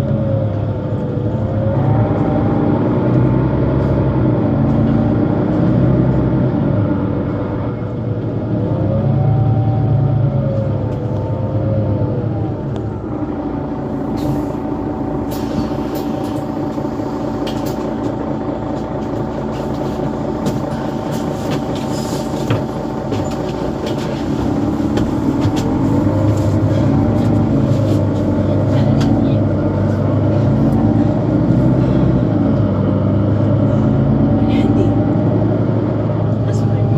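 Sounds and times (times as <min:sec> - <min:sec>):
bus diesel engine and driveline whine: 0:00.0 - 0:36.9.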